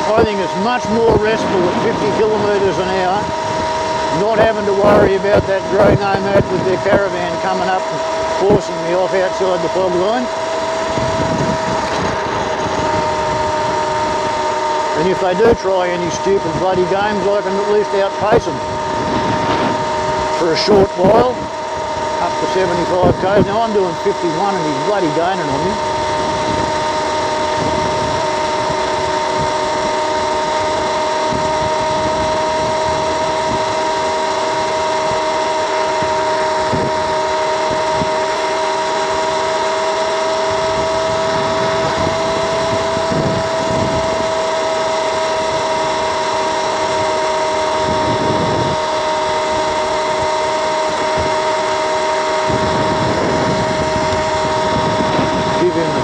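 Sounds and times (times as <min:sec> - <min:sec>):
electric scooter whine: 0:00.0 - 0:56.0
wind buffeting microphone: 0:00.0 - 0:56.0.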